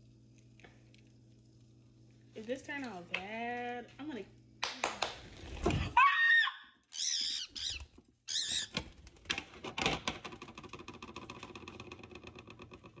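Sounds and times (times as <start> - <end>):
bird chirps: 7.0 - 8.8.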